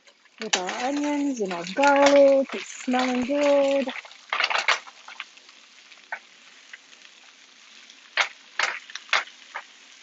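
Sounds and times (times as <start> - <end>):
vegetables sizzling in a frying pan: 0.0 - 10.0
utensil clicking against pan: 0.4 - 5.3, 8.1 - 9.8.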